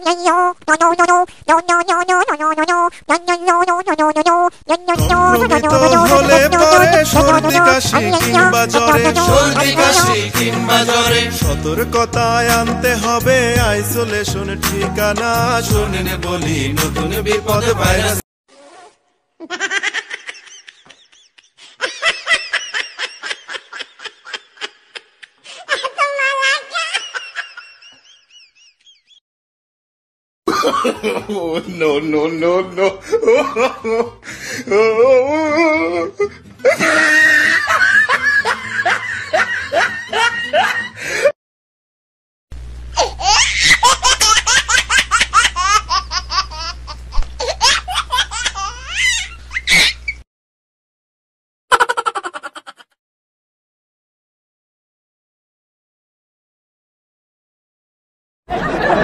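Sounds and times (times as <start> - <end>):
high-pitched laughter: 4.8 - 10.2, 19.4 - 29.0, 35.4 - 41.0, 43.0 - 50.2, 51.7 - 53.0
hearty laughter: 19.4 - 29.2, 30.5 - 31.6, 32.8 - 34.9, 36.2 - 41.3, 58.5 - 59.0.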